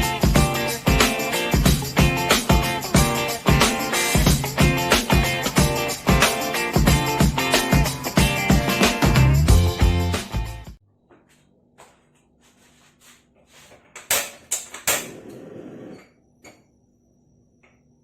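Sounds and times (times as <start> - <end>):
kitchen clicks and knocks: 13.7 - 15.4.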